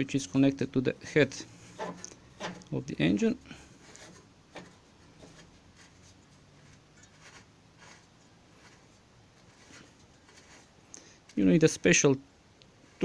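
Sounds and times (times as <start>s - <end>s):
faint scrapes and ticks of tools: 1.6s - 2.8s, 3.4s - 11.4s.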